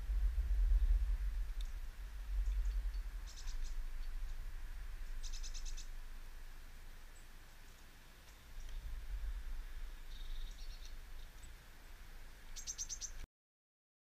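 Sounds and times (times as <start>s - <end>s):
low rumble: 0.0s - 12.6s
small birds chirping: 0.6s - 13.3s
faint ticks: 1.5s - 1.8s, 7.7s - 8.8s.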